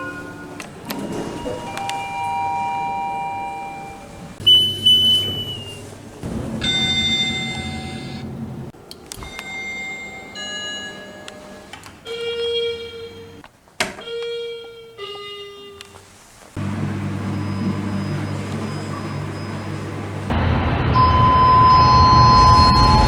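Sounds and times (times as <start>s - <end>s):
elevator chimes: 0.0s - 13.4s, 14.0s - 20.3s, 21.0s - 23.0s
electronic beeps: 1.0s - 5.8s.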